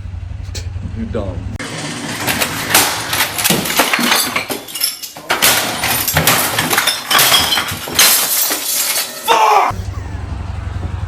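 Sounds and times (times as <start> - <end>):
hard objects clinking and clattering: 1.6 - 9.7.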